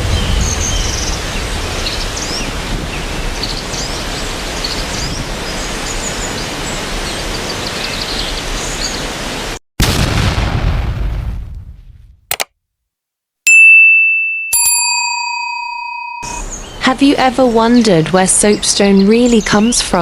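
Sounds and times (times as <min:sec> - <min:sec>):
wind rumbling on microphone: 0:00.0 - 0:09.5
faint high chirps: 0:15.6 - 0:16.9.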